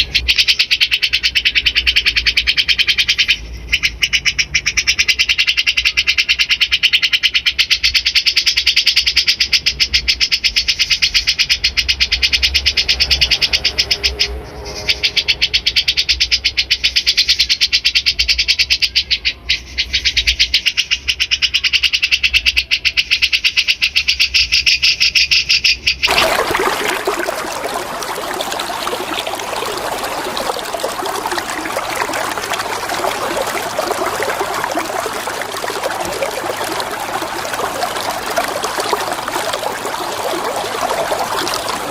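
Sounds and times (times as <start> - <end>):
flowing water: 26.1 - 41.9.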